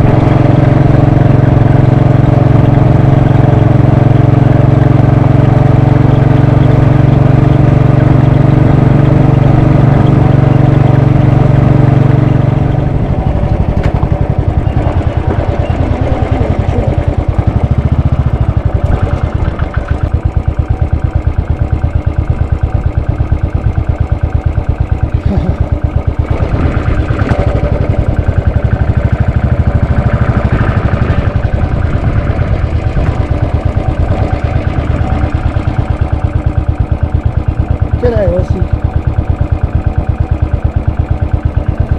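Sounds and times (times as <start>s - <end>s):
motorcycle engine thumping: 11.4s - 41.9s.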